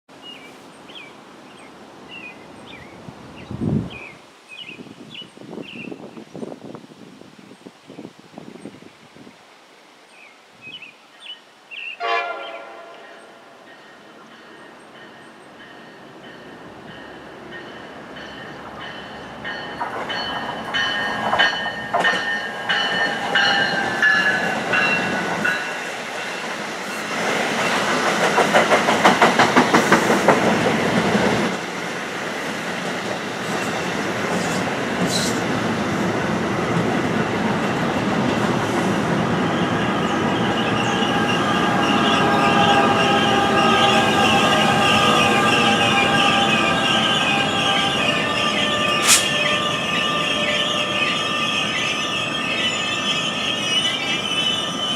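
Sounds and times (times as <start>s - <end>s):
train rumble: 12.4s - 54.9s
train wheel clatter: 15.0s - 31.6s, 48.9s - 49.6s.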